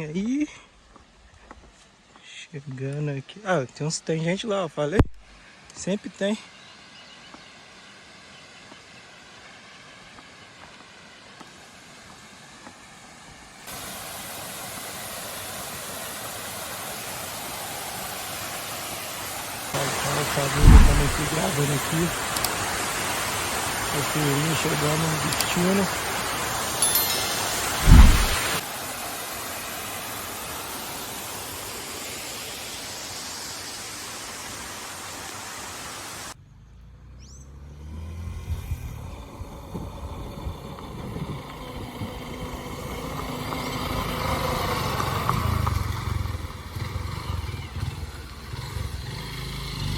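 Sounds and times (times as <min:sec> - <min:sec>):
small waterfall rushing: 0:05.3 - 0:36.4, 0:39.5 - 0:49.9
low hum: 0:20.6 - 0:21.4, 0:27.2 - 0:28.6
bird chirp: 0:36.4 - 0:37.7.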